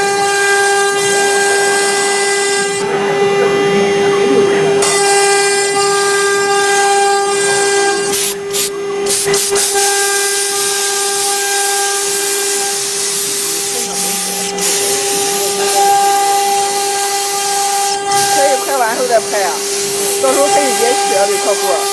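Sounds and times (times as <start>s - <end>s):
router spindle high whine: 0.0s - 21.9s
cutter hissing through wood: 4.8s - 21.9s.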